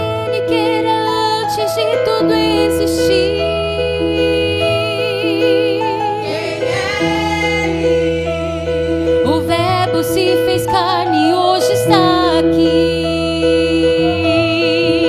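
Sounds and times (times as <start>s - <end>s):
sustained keyboard chords: 0.0s - 15.0s
women's vocal group singing gospel: 3.1s - 12.6s.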